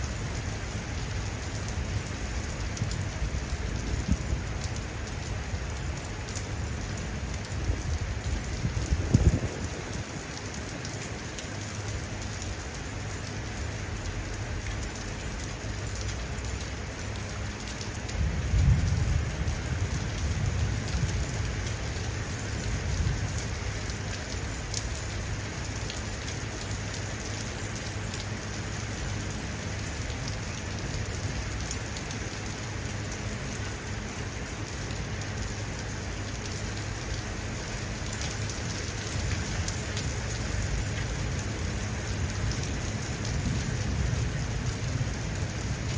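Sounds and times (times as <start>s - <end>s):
steady rain pattering: 0.0s - 45.9s
low rumble of thunder: 0.1s - 6.1s, 6.7s - 10.6s, 18.1s - 24.1s, 39.2s - 45.9s.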